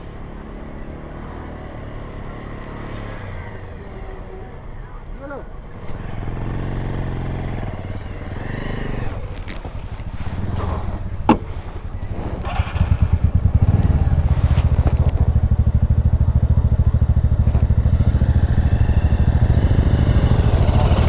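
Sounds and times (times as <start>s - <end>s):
motorbike engine running: 6.0s - 21.0s.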